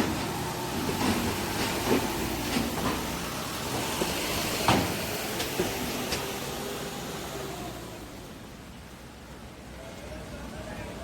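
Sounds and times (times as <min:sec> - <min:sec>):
wheels clunking on steel plates: 0:00.0 - 0:06.3
heavy vehicles rumbling: 0:00.0 - 0:11.0.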